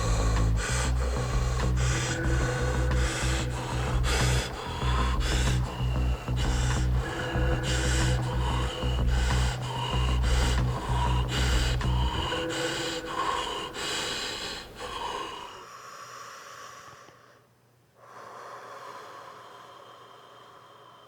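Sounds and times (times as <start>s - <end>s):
low bass drone: 0.0s - 13.8s
heavy breathing and gasping: 0.0s - 21.0s.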